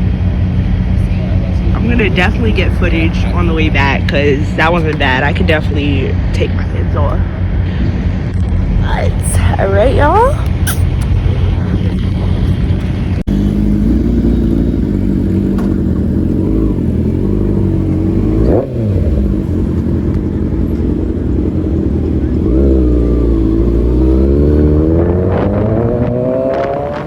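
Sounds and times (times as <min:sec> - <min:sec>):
motorcycle engine revving: 0:09.6 - 0:27.0.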